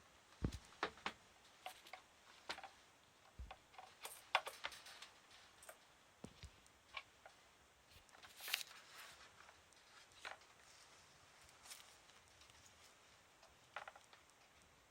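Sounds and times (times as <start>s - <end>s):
kitten paws tapping: 0.4s - 1.9s
rustle: 6.6s - 14.9s.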